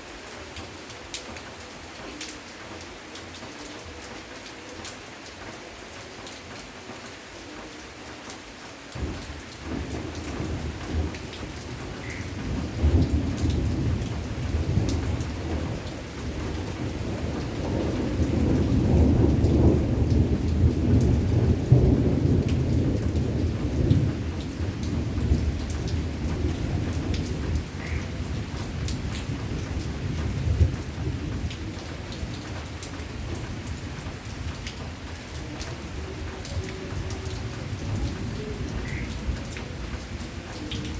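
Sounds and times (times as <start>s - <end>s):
rain falling: 0.0s - 40.9s
thunder rumbling: 9.0s - 40.9s.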